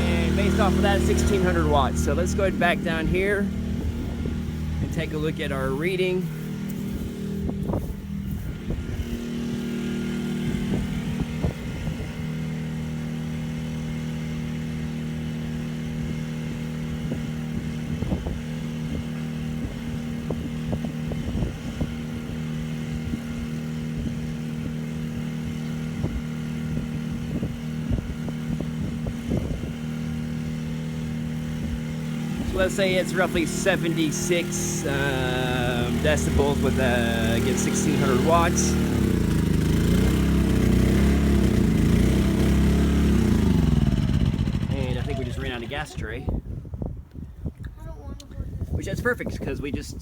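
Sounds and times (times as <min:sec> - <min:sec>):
low thumps: 0:00.0 - 0:12.8
generator engine hum: 0:00.0 - 0:47.2.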